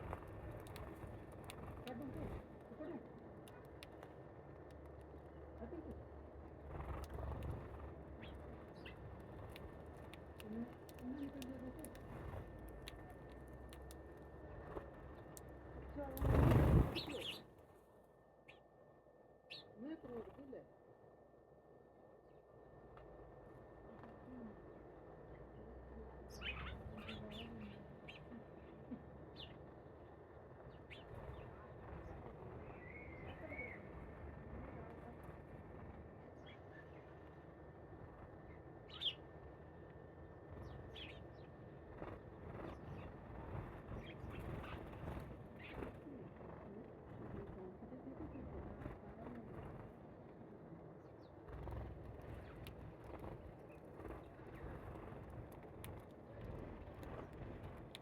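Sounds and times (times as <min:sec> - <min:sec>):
low steady hum: 0:00.0 - 0:58.0
faint clicks: 0:00.1 - 0:06.0, 0:08.7 - 0:15.5, 0:52.0 - 0:58.0
faint bird chirps: 0:06.8 - 0:17.6, 0:18.4 - 0:20.7, 0:23.9 - 0:35.0, 0:36.3 - 0:37.4, 0:38.4 - 0:39.3, 0:40.5 - 0:41.8, 0:42.4 - 0:46.6
bird high chirps: 0:16.2 - 0:17.5, 0:19.5 - 0:19.8, 0:26.3 - 0:28.4, 0:32.8 - 0:33.9, 0:38.9 - 0:39.2.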